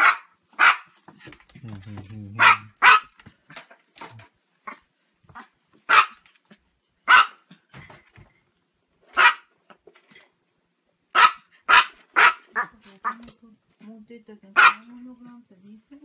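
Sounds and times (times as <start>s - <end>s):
small dog barking: 0.0s - 1.0s, 2.4s - 3.2s, 5.4s - 6.2s, 7.1s - 7.5s, 9.1s - 9.5s, 11.1s - 13.2s, 14.6s - 14.9s.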